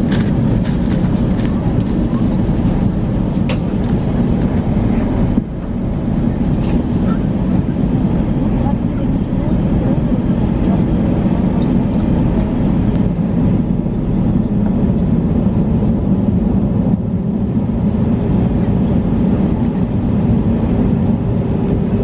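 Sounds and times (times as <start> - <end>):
aircraft cabin low rumble: 0.0 - 22.0.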